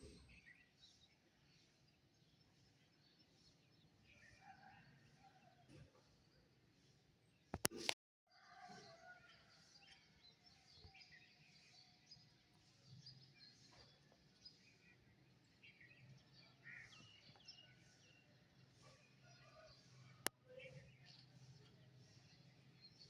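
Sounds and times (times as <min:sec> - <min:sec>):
sharp clicks: 0:07.6 - 0:08.0.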